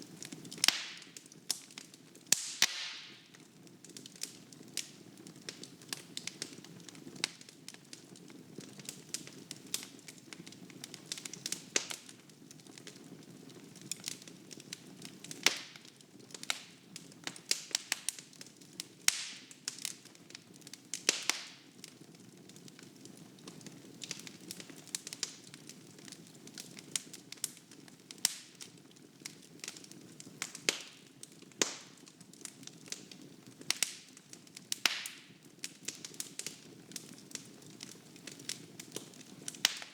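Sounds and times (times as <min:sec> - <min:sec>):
fire burning: 0:00.0 - 0:39.9
logs crackling and popping: 0:00.0 - 0:39.9.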